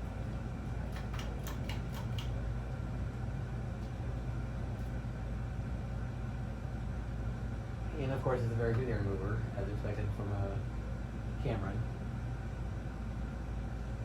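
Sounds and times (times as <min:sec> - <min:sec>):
ceiling fan motor hum: 0:00.0 - 0:14.0.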